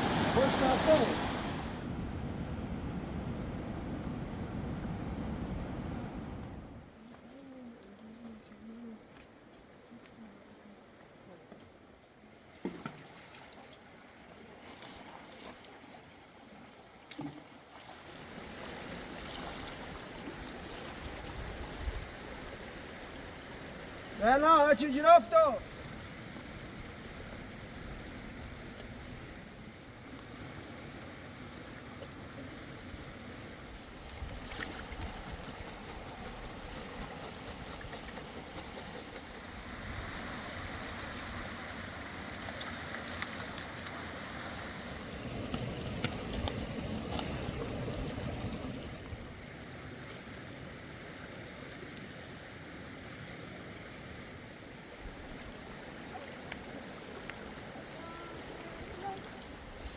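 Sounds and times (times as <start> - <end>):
river water rushing: 0.0 - 1.9, 29.2 - 59.9.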